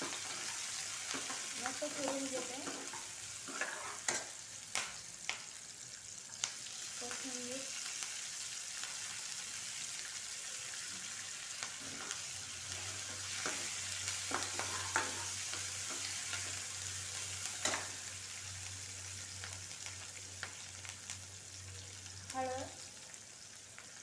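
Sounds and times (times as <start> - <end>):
onions sizzling in hot oil: 0.0 - 24.0
spatula scraping a pan: 2.3 - 4.3, 14.3 - 16.2.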